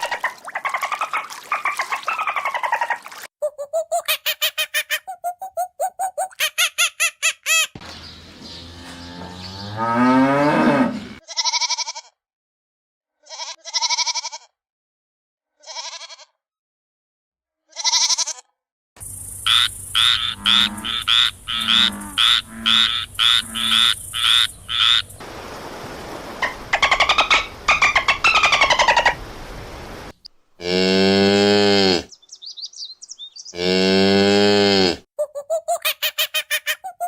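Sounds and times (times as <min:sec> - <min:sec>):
rapid bird calls: 0:00.0 - 0:08.6, 0:19.0 - 0:25.3, 0:26.4 - 0:29.2, 0:32.1 - 0:33.7
cow mooing: 0:08.6 - 0:11.2, 0:20.2 - 0:23.8, 0:30.6 - 0:32.1, 0:33.6 - 0:35.0
sheep or goat bleating: 0:11.2 - 0:12.2, 0:13.2 - 0:14.6, 0:15.6 - 0:16.4, 0:17.7 - 0:18.5
frog croaking: 0:19.0 - 0:25.2.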